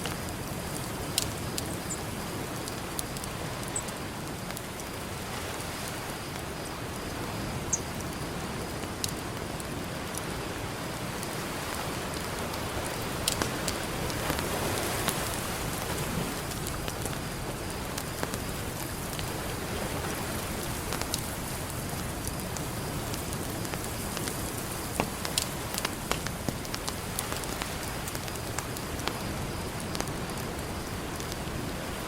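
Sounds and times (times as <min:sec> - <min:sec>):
campfire crackling and popping: 0:00.0 - 0:32.0
ocean surf: 0:09.3 - 0:22.1.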